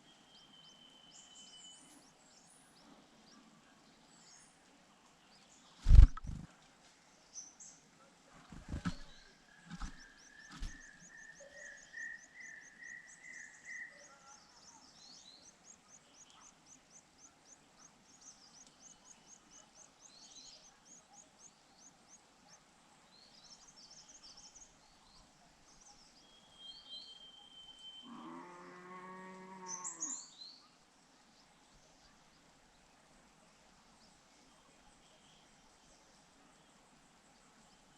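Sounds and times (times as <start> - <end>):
birds chirping rapidly: 5.8 - 6.5, 8.4 - 12.4.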